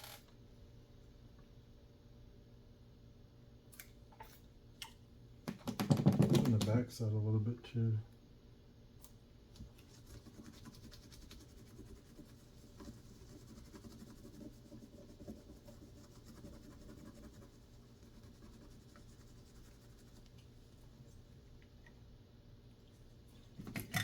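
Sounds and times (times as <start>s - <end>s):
scratching on circuit board: 9.9s - 20.3s.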